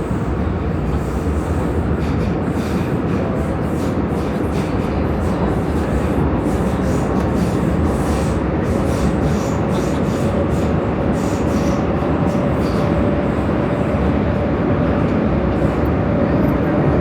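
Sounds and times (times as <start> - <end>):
metro train rumbling in tunnel: 0.0 - 17.0.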